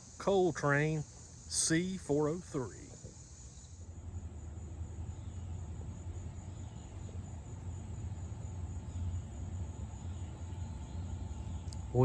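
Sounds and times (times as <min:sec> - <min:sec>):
high insect trill: 0:00.0 - 0:12.0
coal train rumbling: 0:03.8 - 0:12.0.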